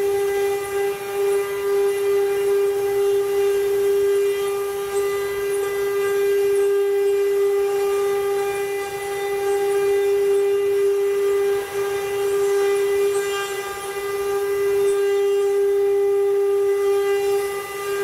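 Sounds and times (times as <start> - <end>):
high-pitched spindle motor whine: 0.0 - 18.0.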